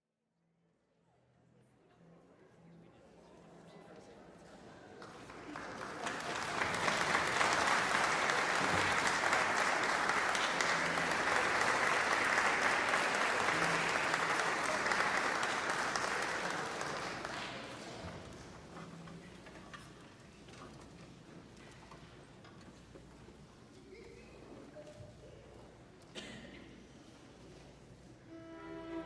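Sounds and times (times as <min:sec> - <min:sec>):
audience applauding: 0:05.0 - 0:18.1.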